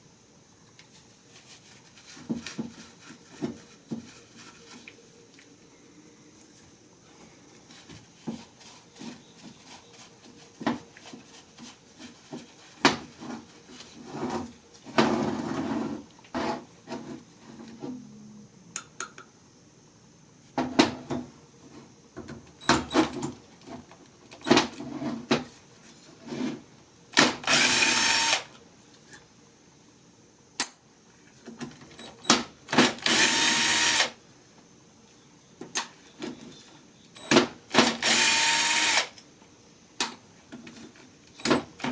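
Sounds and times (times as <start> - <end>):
power drill running: 27.4 - 28.5, 32.8 - 34.2, 37.8 - 39.1.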